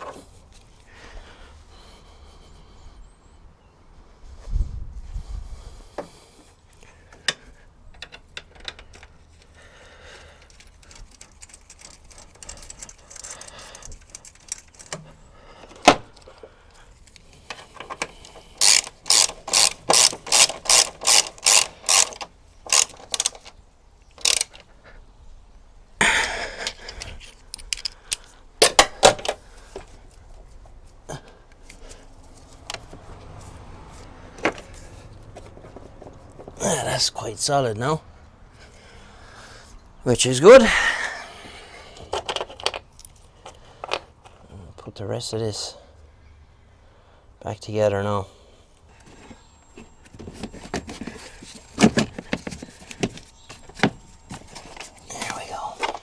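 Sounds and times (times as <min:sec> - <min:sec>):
ratchet wrench ratcheting: 0:10.4 - 0:15.0, 0:18.2 - 0:24.6
tool clinks: 0:17.8 - 0:23.5.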